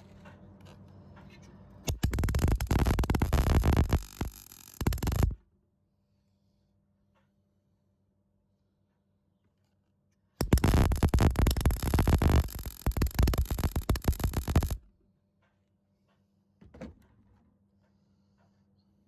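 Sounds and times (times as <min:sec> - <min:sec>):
welder arc crackling and buzzing: 0:01.9 - 0:05.4, 0:10.4 - 0:14.8.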